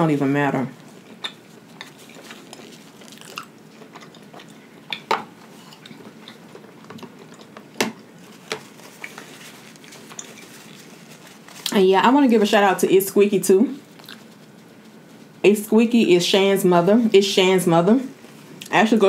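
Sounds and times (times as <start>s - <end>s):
person chewing with mouth smacks: 0.8s - 8.1s, 8.9s - 11.8s, 13.8s - 14.6s.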